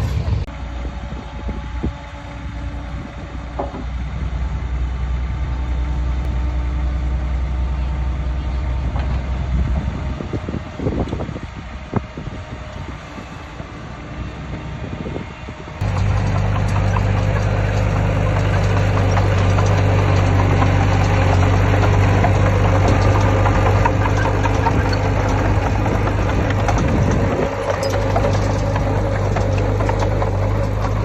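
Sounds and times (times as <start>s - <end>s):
heavy machinery diesel engine: 0.0s - 31.0s
metallic clatter: 15.8s - 31.0s.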